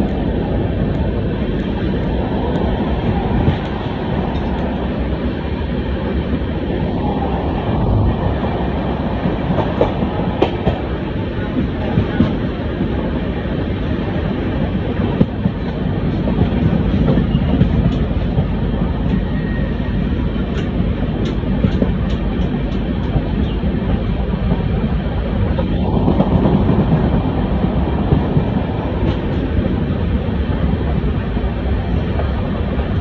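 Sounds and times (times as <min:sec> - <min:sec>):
sharp rail clicks: 0:00.0 - 0:05.2, 0:09.1 - 0:12.9, 0:14.6 - 0:29.8.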